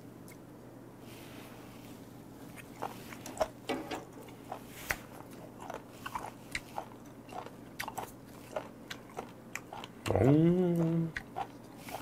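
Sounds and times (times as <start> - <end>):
crisp chewing crunches: 4.3 - 12.0.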